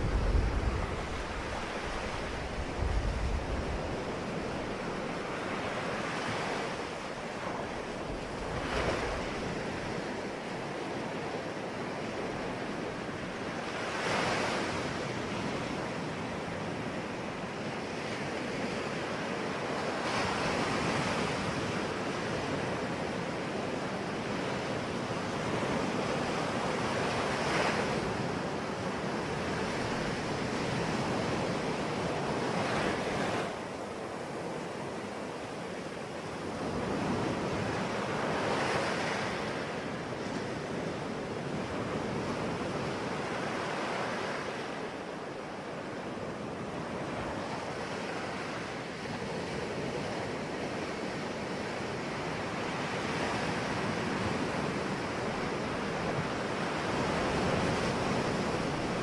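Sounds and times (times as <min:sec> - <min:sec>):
ocean waves breaking: 0:00.0 - 0:59.0
wind rumble on microphone: 0:00.0 - 0:59.0.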